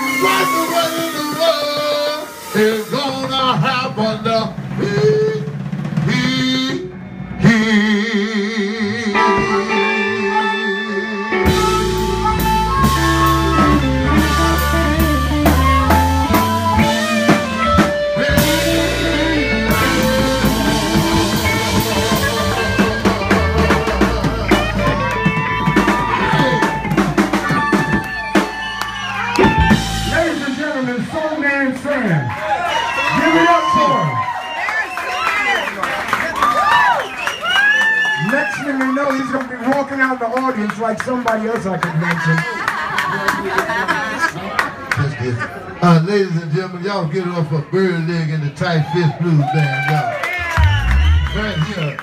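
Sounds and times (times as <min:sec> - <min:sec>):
live blues band playing: 0:00.0 - 0:38.6, 0:40.6 - 0:48.6, 0:49.8 - 0:52.0
held wavering guitar note: 0:09.2 - 0:31.2.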